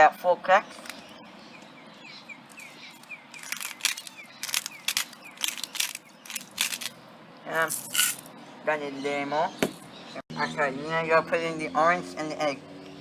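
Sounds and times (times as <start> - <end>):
grinder crunching salt crystals: 3.4 - 6.9.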